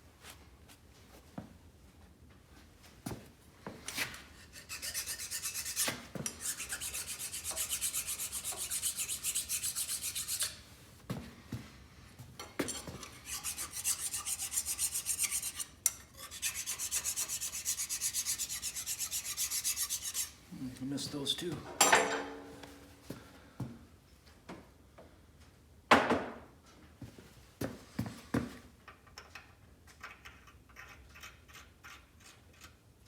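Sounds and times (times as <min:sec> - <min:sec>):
hand rasping on metal: 0:04.4 - 0:10.6, 0:12.7 - 0:20.4
metal part clunking: 0:21.8 - 0:22.5.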